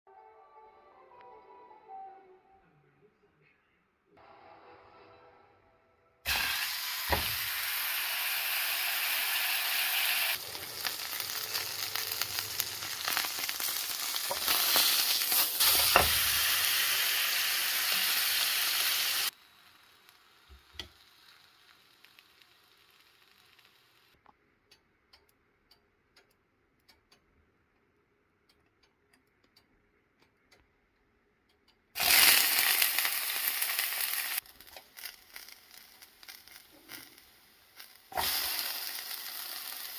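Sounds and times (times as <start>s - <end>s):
steak sizzling in a pan: 6.3s - 24.1s, 32.0s - 39.9s
faint crackles and ticks: 34.4s - 38.1s.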